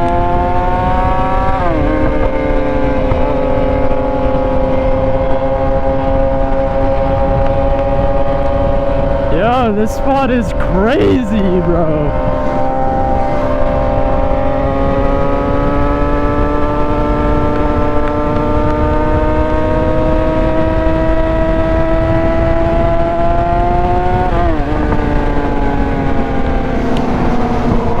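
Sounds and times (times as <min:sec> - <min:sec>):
motorcycle engine accelerating: 0:00.0 - 0:09.6, 0:12.1 - 0:28.0
wind noise: 0:05.0 - 0:09.8.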